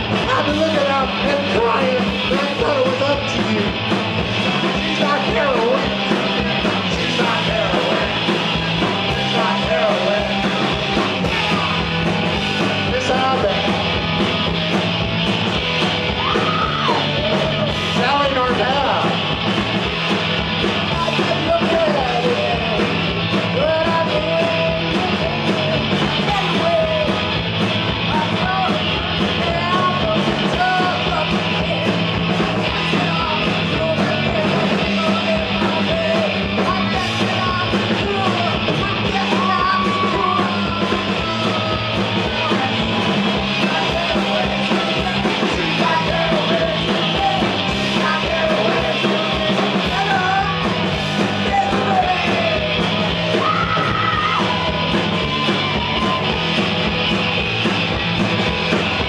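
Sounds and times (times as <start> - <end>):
live rock band playing: 0.0 - 59.0
person yelling or singing: 0.2 - 3.9, 4.7 - 13.9, 16.0 - 19.2, 20.8 - 56.9.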